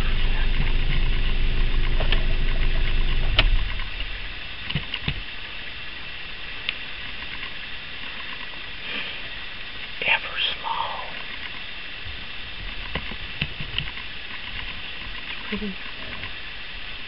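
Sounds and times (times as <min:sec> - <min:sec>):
engine switch-off click: 0:00.0 - 0:05.2
vehicle engine idling: 0:00.0 - 0:17.0.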